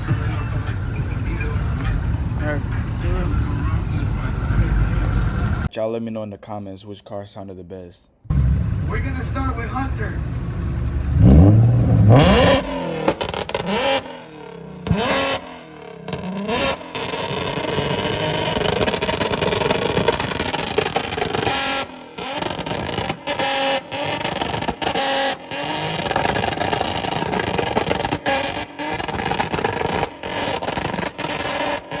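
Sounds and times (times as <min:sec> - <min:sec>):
car engine revving hard: 0:00.0 - 0:05.7, 0:08.3 - 0:32.0.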